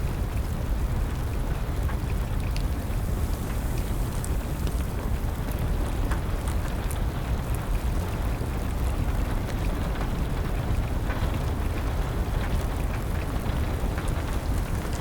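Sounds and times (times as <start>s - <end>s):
steady rain: 0.0s - 15.0s
wood fire crackling: 0.2s - 15.0s.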